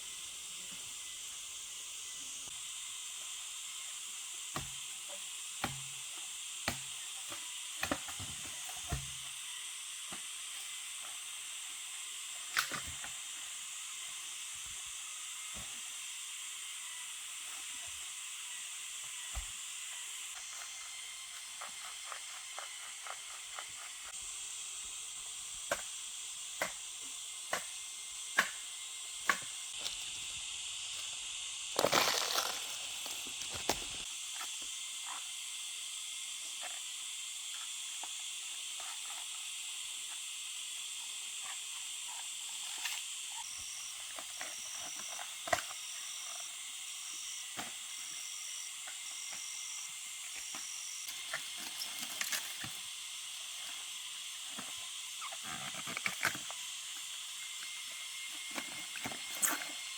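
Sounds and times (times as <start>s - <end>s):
steady high hiss: 23.7s - 59.9s.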